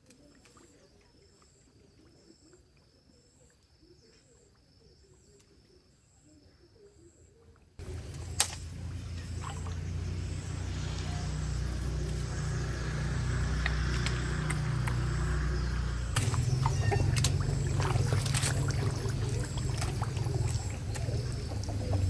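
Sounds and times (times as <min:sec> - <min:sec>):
steady low rumble: 0:07.8 - 0:22.0.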